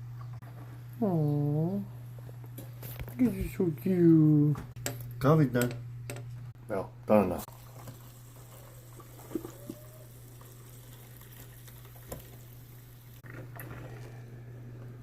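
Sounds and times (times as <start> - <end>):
coffee maker gurgling and bubbling: 7.4 - 15.0.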